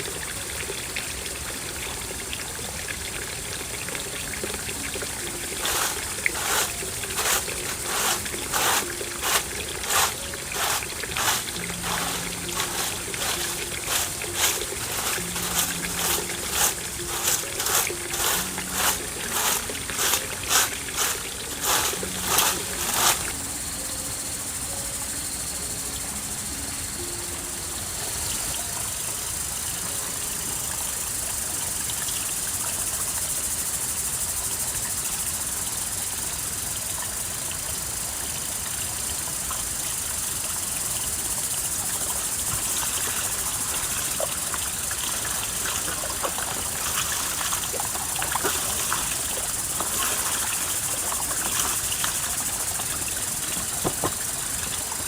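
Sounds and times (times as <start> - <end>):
water trickling: 0.0 - 55.0
sharp rhythmic strokes: 4.8 - 23.5.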